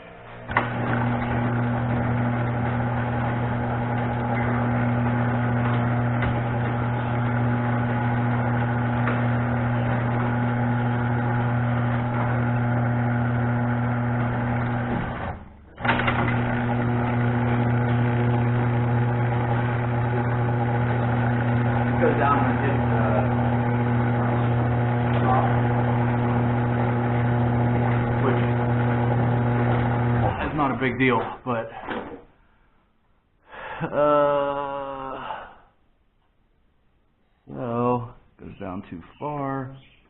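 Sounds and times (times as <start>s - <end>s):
garage door opener motor: 0.0s - 31.3s.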